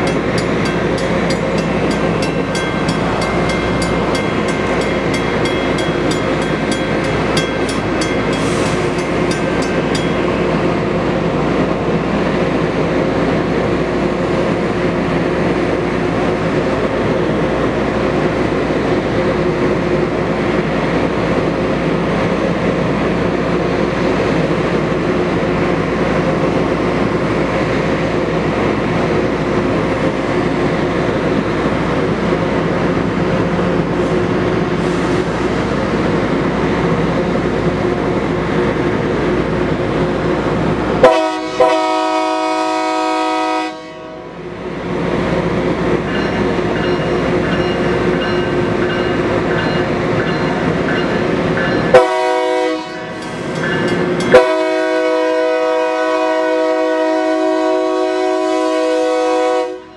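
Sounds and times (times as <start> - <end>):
train rumbling on track: 0.0 - 59.9
locomotive horn: 41.0 - 44.3, 51.9 - 53.2, 54.3 - 59.9.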